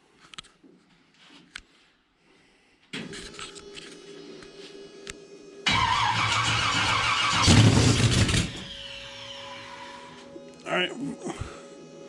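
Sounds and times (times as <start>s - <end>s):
starter motor cranking: 5.7s - 8.8s
engine firing: 5.7s - 9.8s.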